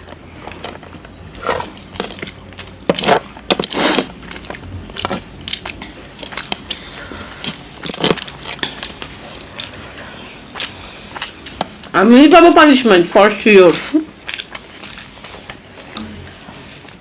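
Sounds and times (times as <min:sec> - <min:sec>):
crunching and chewing: 0:00.0 - 0:12.0, 0:13.7 - 0:17.0.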